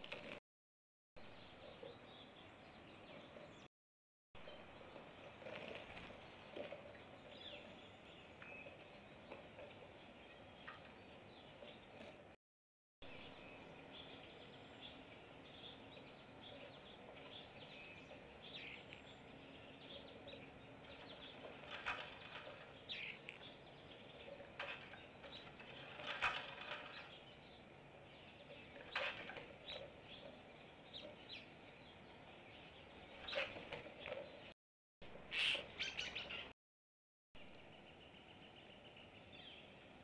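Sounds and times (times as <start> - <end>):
birds chirping and calling: 1.2 - 3.7, 13.1 - 34.5, 35.2 - 36.5.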